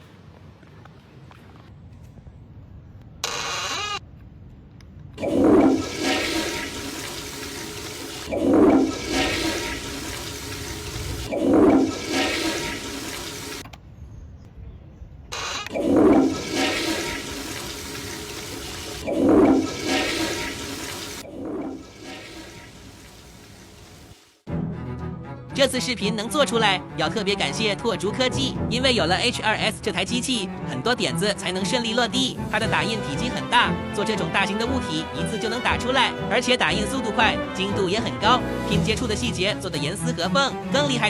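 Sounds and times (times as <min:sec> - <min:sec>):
water gushing in surges: 0:05.2 - 0:13.6, 0:15.7 - 0:24.4.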